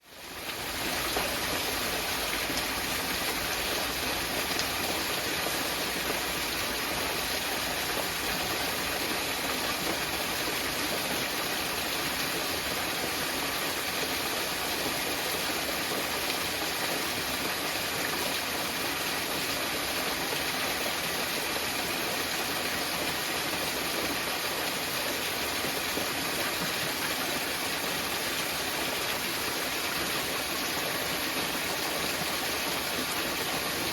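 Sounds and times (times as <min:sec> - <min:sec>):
waterfall rushing and splashing: 0:00.0 - 0:33.9.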